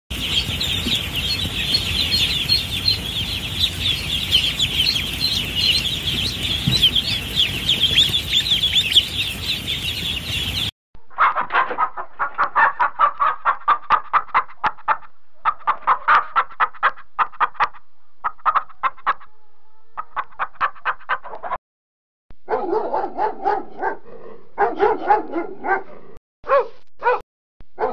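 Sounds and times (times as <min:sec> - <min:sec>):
ducklings peeping: 0:00.1 - 0:10.7
hens clucking: 0:00.1 - 0:21.6.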